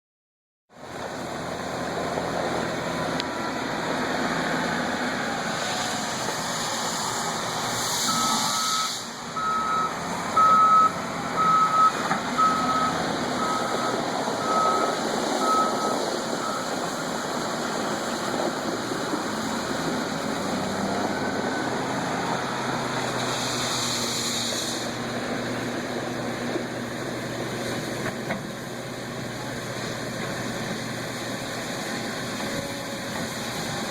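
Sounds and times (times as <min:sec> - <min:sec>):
back-up alarm beeping: 0:08.1 - 0:16.6.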